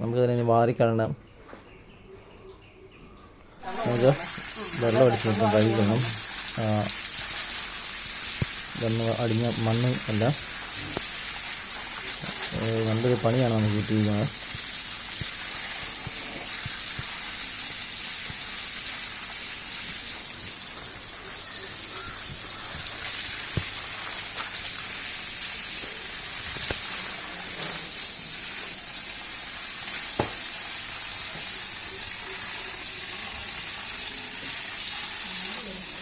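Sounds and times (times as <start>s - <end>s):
hose spraying water on pavement: 3.6s - 36.0s
sharp knocks: 30.2s - 30.4s.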